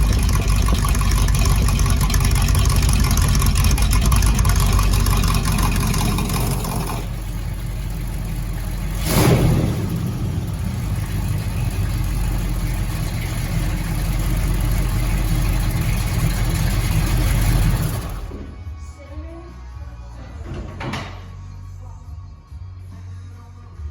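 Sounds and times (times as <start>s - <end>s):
car engine revving: 0.0s - 18.6s.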